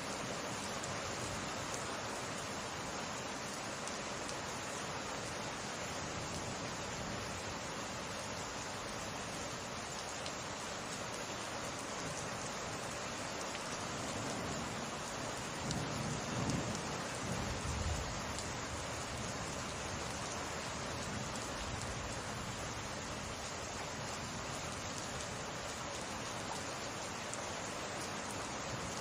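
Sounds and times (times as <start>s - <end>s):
heavy rain pattering: 0.2s - 29.0s.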